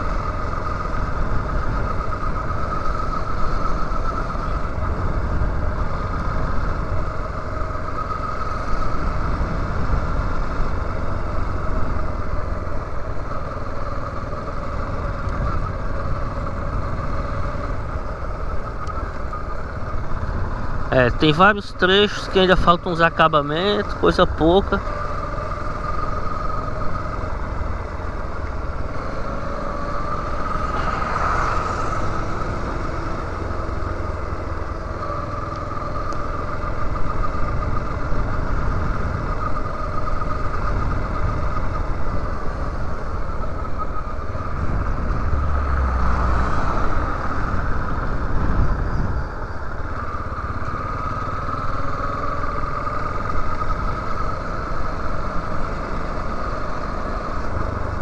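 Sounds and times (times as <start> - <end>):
motorcycle engine running: 0.0 - 58.0
wind rumble on microphone: 14.0 - 21.6, 36.8 - 50.6.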